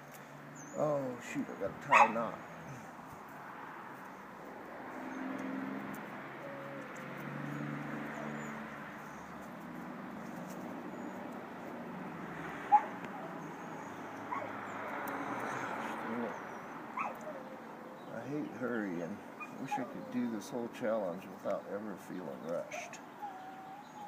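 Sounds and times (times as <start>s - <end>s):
dog yelping: 1.9s - 2.3s, 6.4s - 9.3s, 12.7s - 14.6s, 16.9s - 17.7s, 19.4s - 20.1s, 22.7s - 24.0s
dog whimpering: 6.4s - 7.0s, 17.0s - 17.6s, 19.4s - 20.2s, 22.7s - 24.0s.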